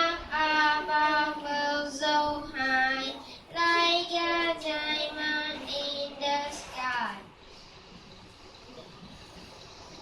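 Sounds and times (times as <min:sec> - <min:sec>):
child singing: 0:00.0 - 0:07.3.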